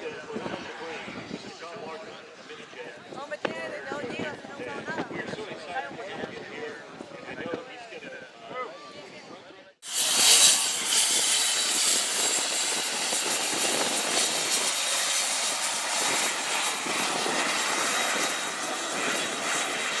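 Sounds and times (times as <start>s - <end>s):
jet engine hiss and whine: 9.8s - 20.0s.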